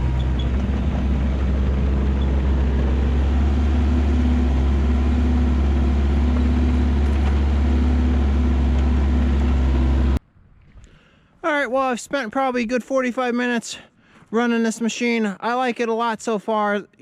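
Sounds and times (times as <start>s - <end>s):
excavator diesel engine running: 0.0s - 10.2s
hydraulic whine: 0.0s - 10.2s.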